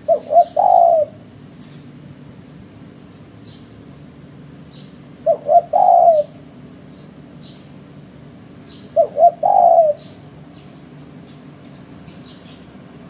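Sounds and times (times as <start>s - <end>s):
dove cooing: 0.0s - 1.4s, 5.2s - 6.5s, 8.7s - 10.2s.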